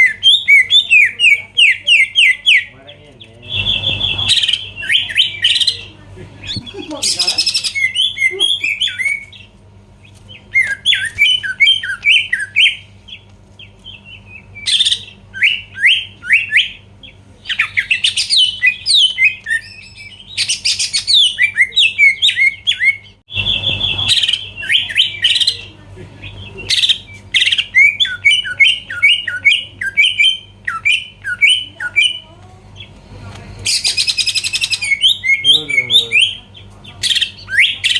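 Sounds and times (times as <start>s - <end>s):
low steady hum: 0.0s - 37.7s
bird singing whistled notes: 3.4s - 5.8s
harsh buzzy bird bursts: 3.4s - 5.8s, 23.3s - 25.6s.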